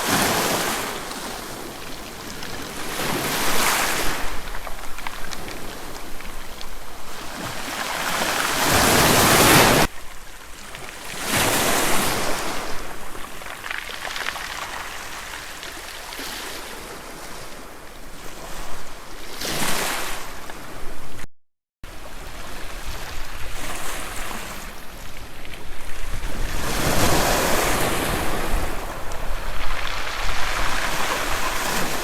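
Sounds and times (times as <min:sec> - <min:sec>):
waves washing on shore: 0:00.0 - 0:21.2, 0:21.9 - 0:32.0
wind buffeting microphone: 0:22.6 - 0:32.0.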